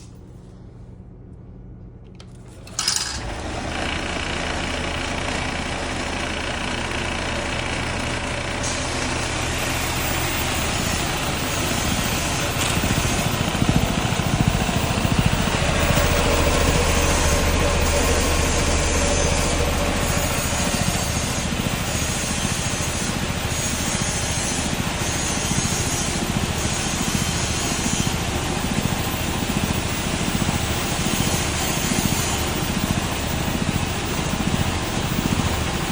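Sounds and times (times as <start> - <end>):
low motor hum: 0.0 - 27.4
vibrating sieve machine running: 2.1 - 35.9.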